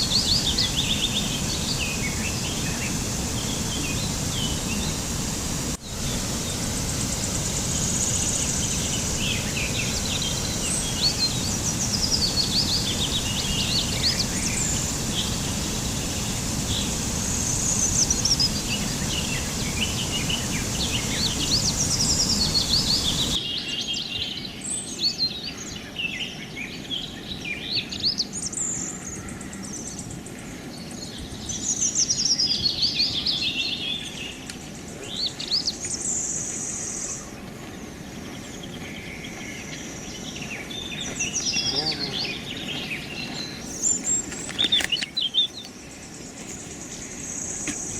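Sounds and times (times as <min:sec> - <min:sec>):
small birds chirping: 0:00.0 - 0:05.1, 0:05.9 - 0:23.4, 0:33.6 - 0:47.9
steady rushing noise: 0:00.0 - 0:23.4.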